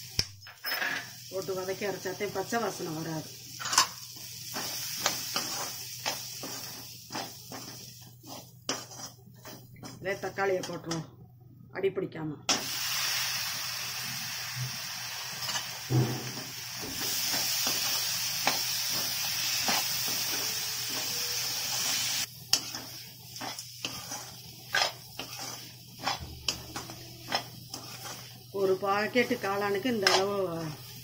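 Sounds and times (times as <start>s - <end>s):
vegetables sizzling in oil: 1.0s - 10.9s, 12.5s - 31.0s
spatula clicking and scraping pan: 3.6s - 11.0s, 15.4s - 15.7s, 21.8s - 31.0s.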